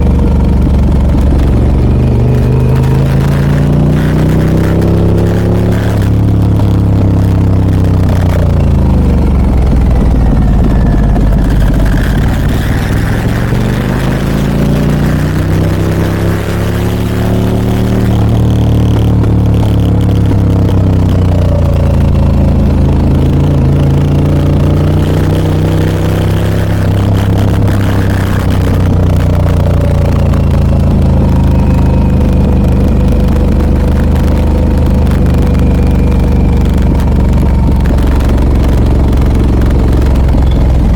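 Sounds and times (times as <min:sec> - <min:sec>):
motorcycle engine while riding: 0:00.0 - 0:40.9.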